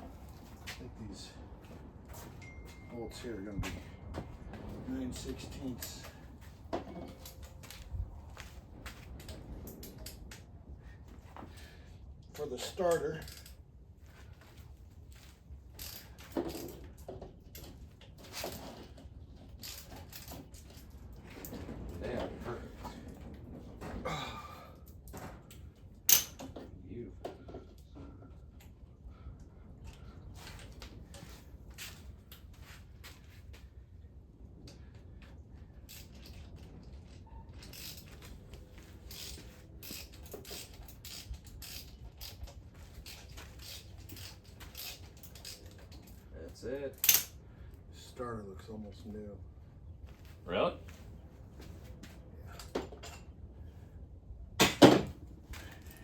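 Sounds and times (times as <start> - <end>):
tools scraping and clicking: 26.1 - 26.6, 37.6 - 46.2.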